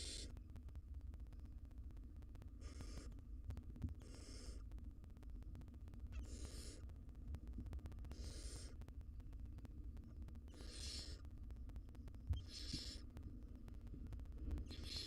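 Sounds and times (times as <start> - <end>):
owl nestlings hissing calls: 0.0 - 0.4, 2.6 - 3.1, 4.0 - 4.6, 6.1 - 6.9, 8.1 - 8.8, 10.5 - 11.3, 12.3 - 13.1, 14.6 - 15.0
low steady hum: 0.0 - 15.0.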